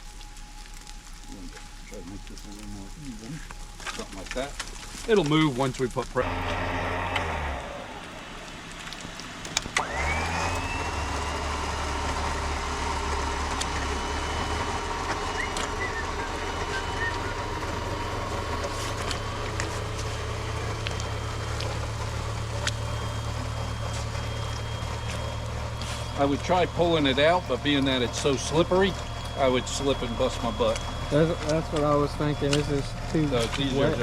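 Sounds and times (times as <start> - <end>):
motor humming with thin whine: 0.0 - 34.0
car motor starting with a click: 6.4 - 7.8, 8.8 - 10.8.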